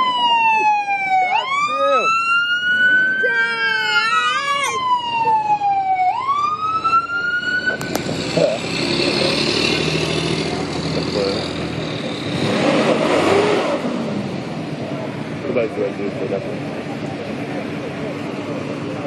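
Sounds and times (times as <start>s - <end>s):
fast warbling siren: 0.0s - 7.9s
emergency siren wailing: 0.0s - 8.0s
vehicle engines: 0.0s - 19.0s.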